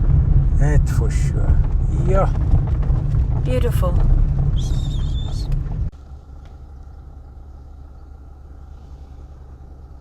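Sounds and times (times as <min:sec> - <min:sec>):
vehicle road and engine rumble: 0:00.0 - 0:10.0.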